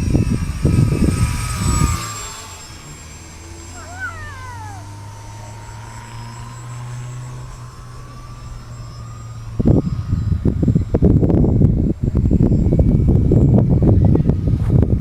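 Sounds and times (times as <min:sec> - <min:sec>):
wind buffeting microphone: 0:00.0 - 0:02.4, 0:09.5 - 0:15.0
model plane motors humming: 0:00.0 - 0:15.0.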